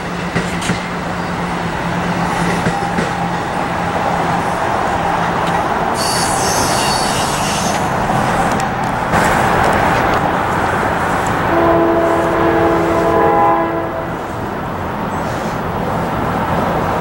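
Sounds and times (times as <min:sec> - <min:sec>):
train passing close by: 0:00.0 - 0:17.0
high-pitched squeal: 0:02.3 - 0:08.0.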